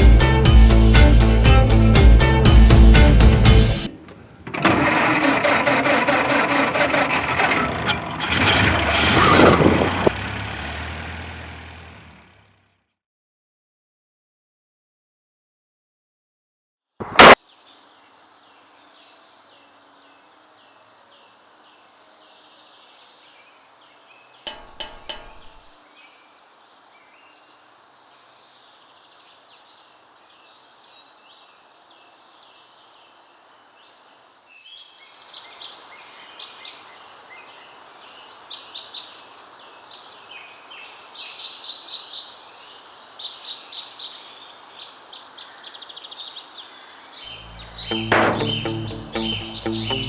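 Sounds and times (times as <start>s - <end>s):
faint hiss: 17.0s - 24.4s, 25.1s - 49.9s
birds chirping: 17.0s - 50.0s
sharp clicks: 47.4s - 50.0s.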